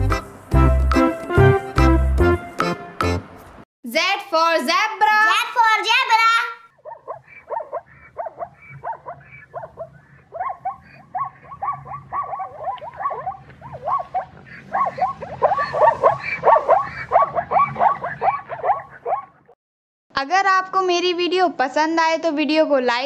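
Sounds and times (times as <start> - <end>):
zebra yelping barks: 6.7 - 19.6.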